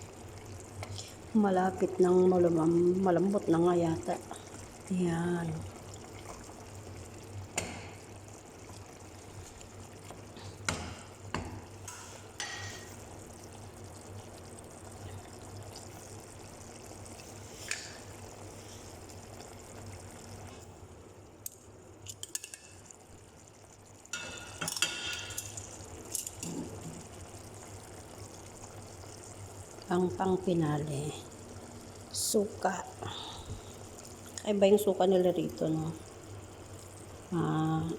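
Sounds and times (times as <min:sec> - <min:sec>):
pot bubbling: 0:00.0 - 0:37.9.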